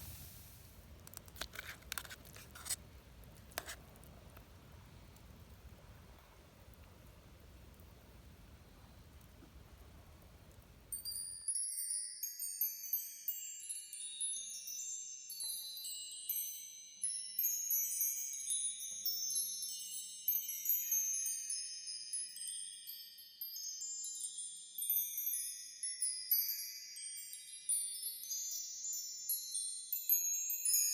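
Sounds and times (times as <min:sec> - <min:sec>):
faint background hiss: 0:00.0 - 0:30.9
tinkling chimes: 0:10.9 - 0:30.9.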